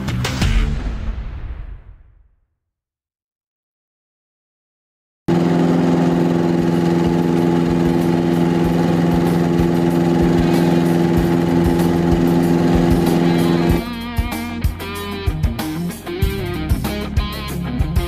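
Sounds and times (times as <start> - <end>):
light aircraft engine drone: 5.3 - 13.8
plucked guitar music: 9.1 - 18.0.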